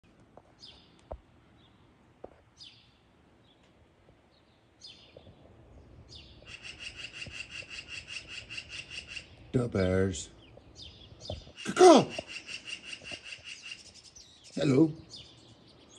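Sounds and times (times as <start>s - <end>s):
bird trilling: 6.2s - 9.5s, 10.4s - 15.5s
bird calls sweeping downward: 6.4s - 9.4s, 10.8s - 15.9s.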